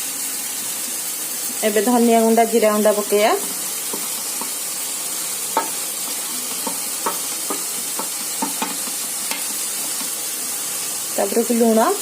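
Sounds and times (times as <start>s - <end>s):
masala sizzling in hot oil: 0.0s - 12.0s
spoon knocking against pan: 3.4s - 4.7s, 5.5s - 10.2s.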